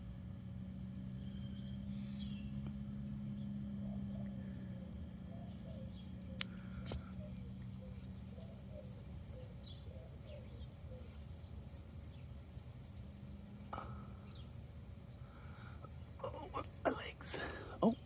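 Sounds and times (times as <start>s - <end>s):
hummingbird squeaking: 7.9s - 13.4s, 16.2s - 18.0s.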